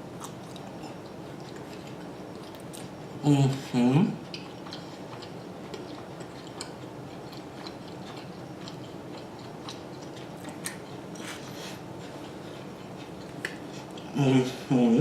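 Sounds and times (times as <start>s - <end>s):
mouth clicks while chewing: 4.3s - 11.4s, 12.5s - 14.1s.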